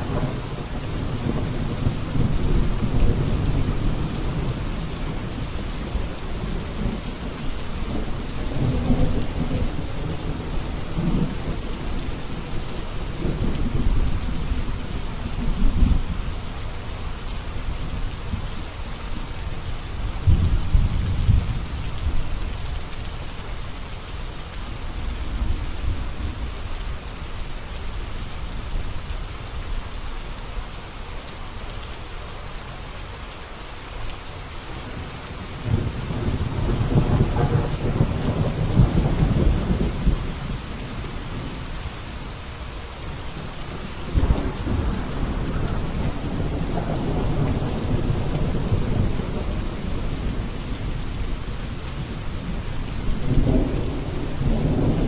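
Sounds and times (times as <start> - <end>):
rolling thunder: 0.0 - 16.2, 20.2 - 22.3, 34.7 - 41.6, 43.3 - 55.0
rain falling: 0.0 - 55.0.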